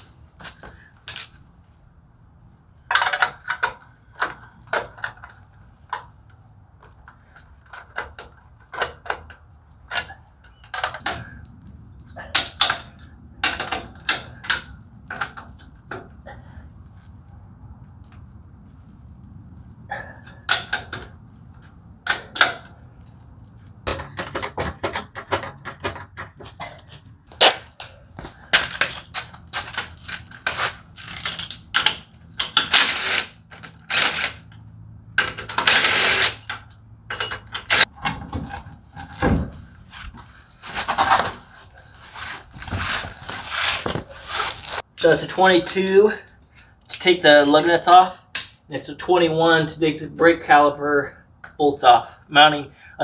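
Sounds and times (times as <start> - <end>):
metallic clicks and clanks: 23.8 - 34.6, 35.2 - 39.3, 47.9 - 48.6.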